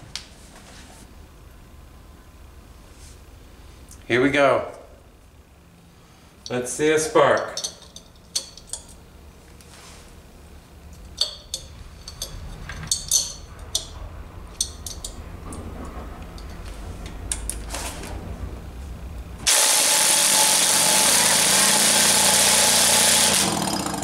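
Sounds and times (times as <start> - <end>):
moped engine whirring: 11.2 - 24.0.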